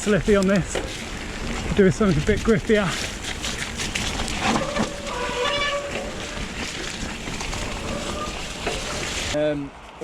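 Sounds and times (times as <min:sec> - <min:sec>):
bike tyres on muddy trail: 0:00.0 - 0:10.0
brief squeal: 0:04.4 - 0:06.6, 0:07.5 - 0:09.1.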